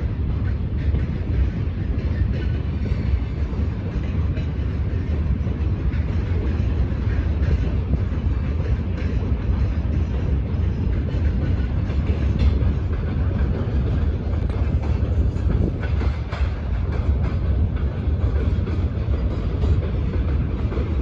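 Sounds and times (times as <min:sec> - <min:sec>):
train rumbling: 0:00.0 - 0:21.0
wheels clattering over rail joints: 0:00.0 - 0:21.0.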